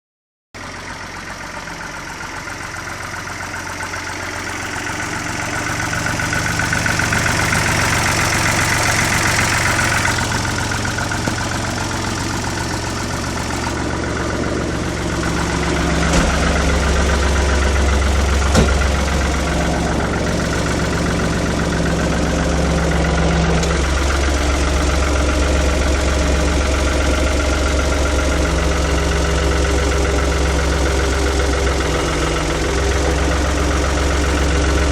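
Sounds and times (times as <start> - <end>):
tractor engine running: 0.6 - 34.9
sharp knock: 18.5 - 18.9.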